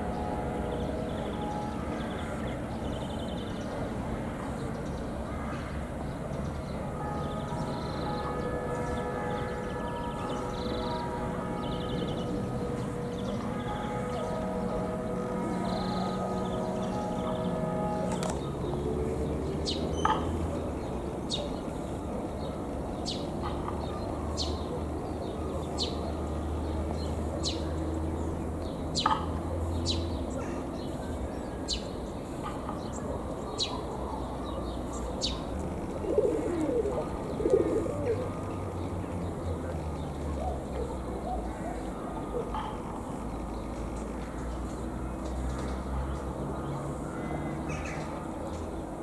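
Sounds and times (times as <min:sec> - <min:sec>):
low wavering cooing: 0:35.4 - 0:39.1.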